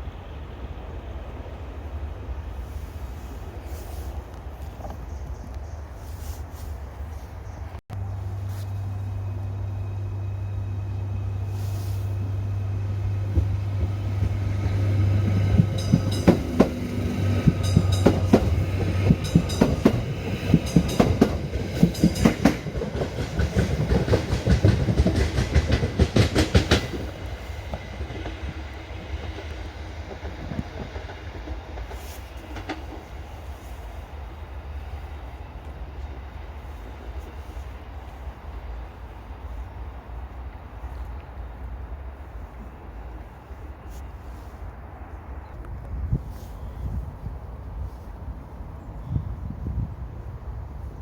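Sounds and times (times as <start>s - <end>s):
steady low hum: 7.9s - 17.9s
train wheels clattering over rail joints: 13.2s - 28.6s.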